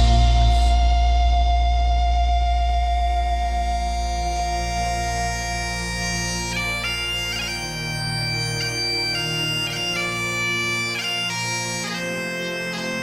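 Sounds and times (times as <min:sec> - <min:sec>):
bagpipes playing a tune: 0:03.4 - 0:13.0.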